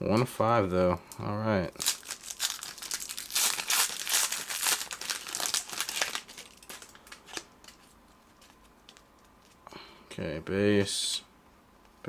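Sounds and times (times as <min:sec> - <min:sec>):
wrapper tearing and crinkling: 0:01.7 - 0:07.8.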